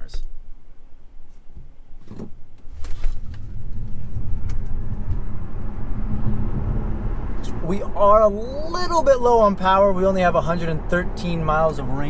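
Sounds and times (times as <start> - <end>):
road and tyre rumble: 2.6 - 12.0
low electric motor whine: 3.2 - 7.9.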